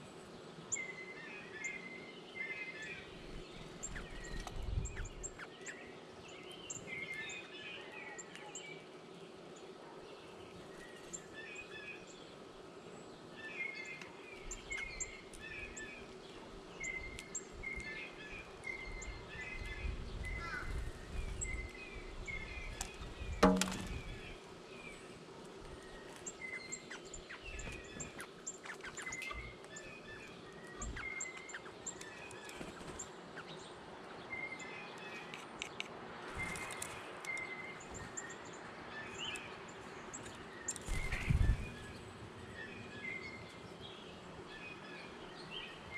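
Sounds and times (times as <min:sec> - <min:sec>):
wild birds chirping: 0:00.0 - 0:45.9
sharp knock: 0:23.4 - 0:24.0.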